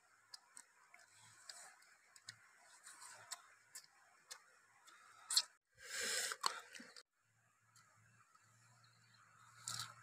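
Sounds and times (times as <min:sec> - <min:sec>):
person chewing: 0:09.6 - 0:10.0.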